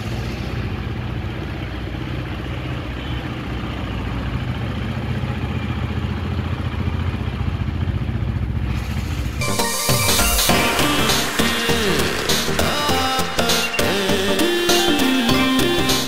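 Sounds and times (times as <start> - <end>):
motorcycle engine idling: 0.0 - 9.4.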